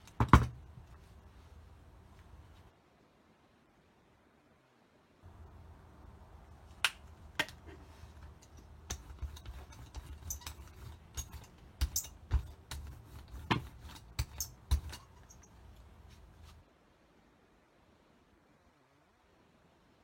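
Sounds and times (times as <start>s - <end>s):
low steady rumble: 5.2s - 16.6s.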